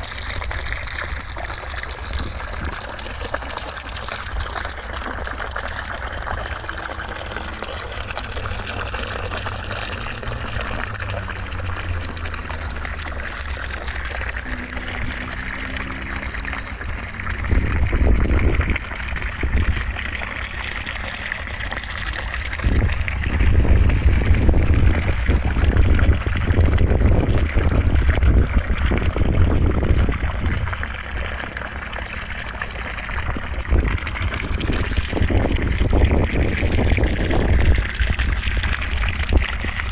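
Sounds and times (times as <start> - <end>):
low rumble: 22.6 - 30.8.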